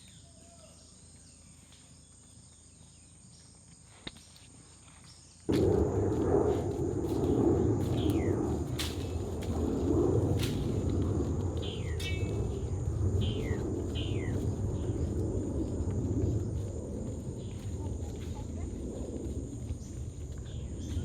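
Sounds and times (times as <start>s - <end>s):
high insect drone: 0.0s - 21.0s
low rumbling noise: 5.5s - 21.0s
bird whistled calls: 13.3s - 14.4s.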